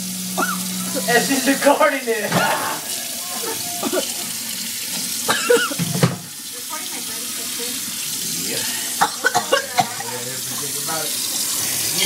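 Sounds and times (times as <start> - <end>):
tap running into sink: 2.2 - 2.9, 3.5 - 8.2.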